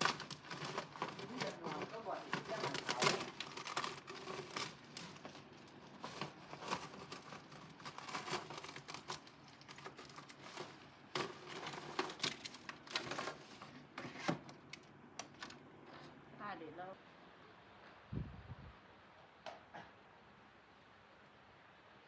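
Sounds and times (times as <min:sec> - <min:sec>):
small hard objects clinking: 0:00.0 - 0:13.8.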